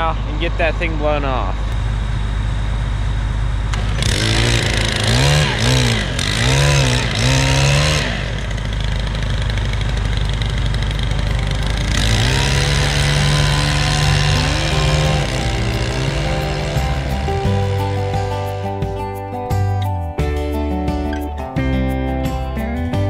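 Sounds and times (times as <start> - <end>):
leaf blower engine revving: 3.7 - 19.2.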